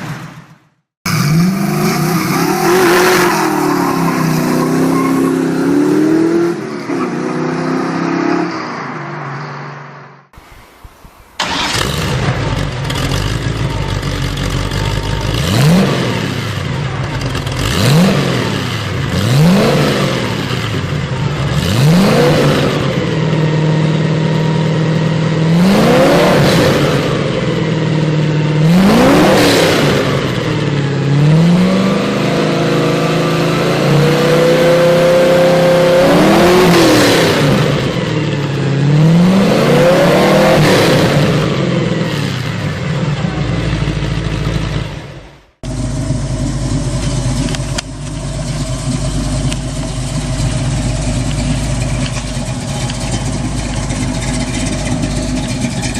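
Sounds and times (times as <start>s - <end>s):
car engine revving: 0.0s - 55.9s
low steady engine sound: 42.5s - 55.9s.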